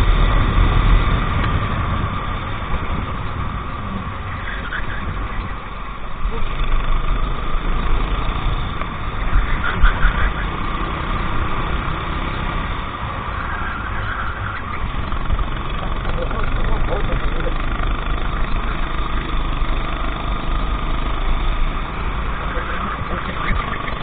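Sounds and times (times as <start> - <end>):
kart engine running at low revs: 0.0 - 24.0.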